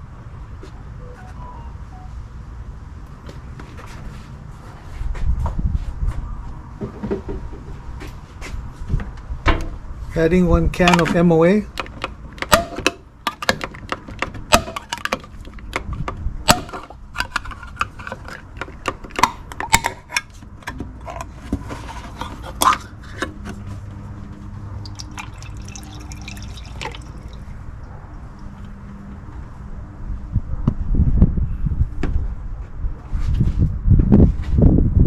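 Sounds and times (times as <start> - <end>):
oil pouring through a funnel: 24.7 - 28.5.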